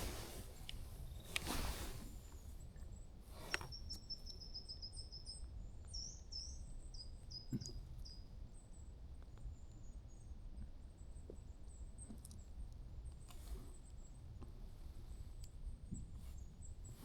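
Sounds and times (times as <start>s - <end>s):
songbird singing faintly: 0.0s - 12.6s.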